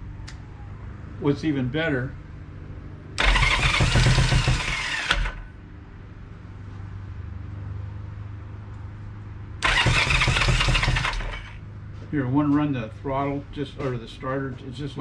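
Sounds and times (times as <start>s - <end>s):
motorcycle electric starter cranking: 3.2s - 5.5s, 9.6s - 11.6s.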